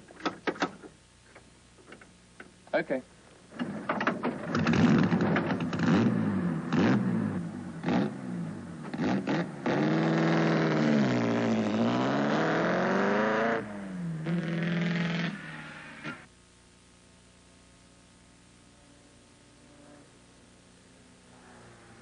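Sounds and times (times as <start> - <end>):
racing engine revving: 4.5 - 16.3.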